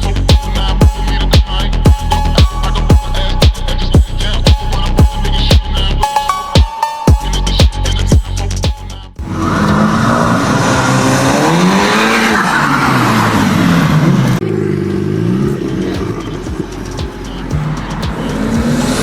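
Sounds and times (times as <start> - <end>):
electronic music beat: 0.0 - 9.9, 14.9 - 19.0
sports car engine revving: 9.2 - 19.0.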